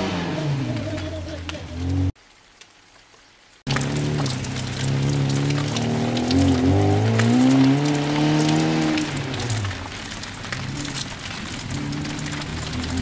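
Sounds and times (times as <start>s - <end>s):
car engine revving: 0.0s - 2.2s, 3.7s - 13.0s
crackling noise: 0.0s - 13.0s.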